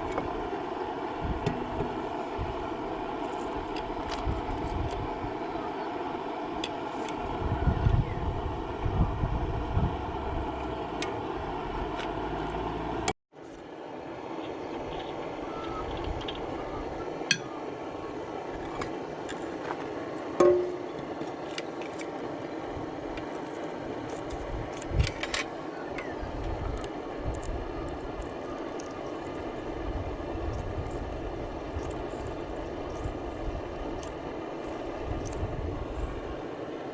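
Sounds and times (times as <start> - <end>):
diesel engine running: 0.0 - 13.2.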